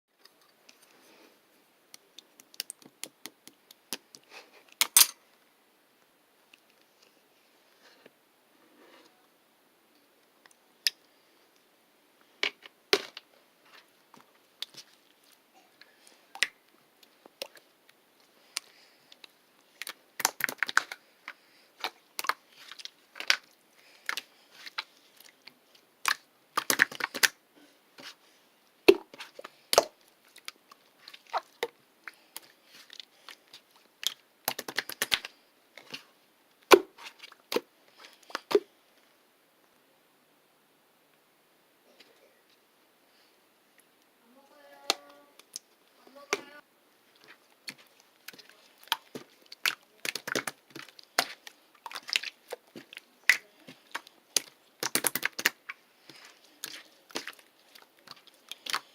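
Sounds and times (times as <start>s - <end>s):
crunchy crackling from hand mixing: 12.9s - 27.4s, 28.0s - 38.7s, 43.8s - 58.9s.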